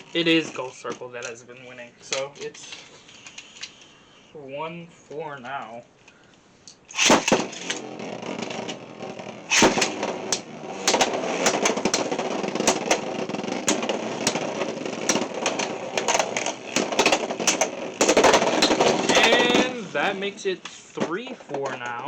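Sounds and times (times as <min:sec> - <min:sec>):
spinning tops grinding: 0:00.0 - 0:00.9, 0:06.9 - 0:20.5
spinning tops clacking: 0:06.9 - 0:20.2.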